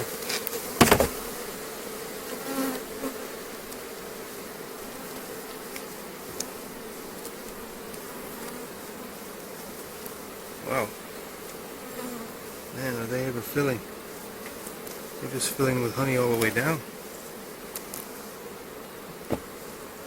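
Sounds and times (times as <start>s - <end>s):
bees buzzing: 0.0s - 20.0s
sharp knock: 0.8s - 1.2s.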